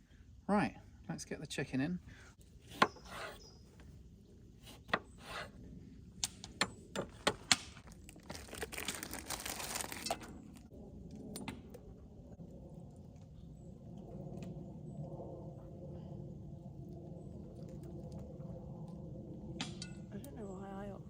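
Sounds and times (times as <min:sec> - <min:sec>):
plastic tearing and crinkling: 0:07.2 - 0:10.7.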